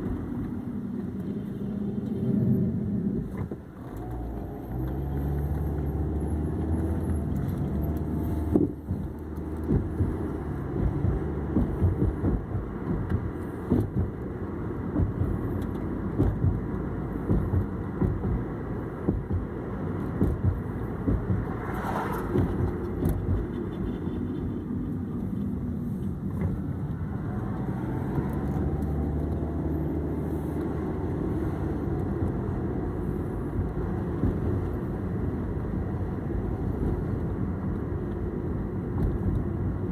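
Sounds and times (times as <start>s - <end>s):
car engine running: 0.0s - 39.9s
knocks and rattles: 8.5s - 14.2s, 14.9s - 24.0s.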